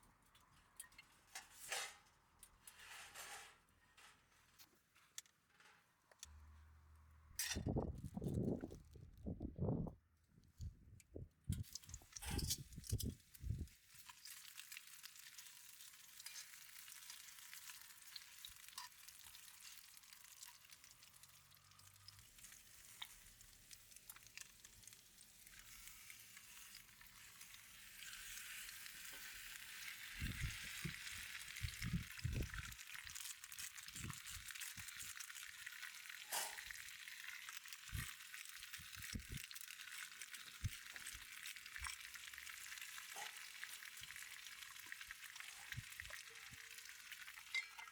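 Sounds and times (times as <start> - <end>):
food sizzling in a pan: 11.6 - 47.9.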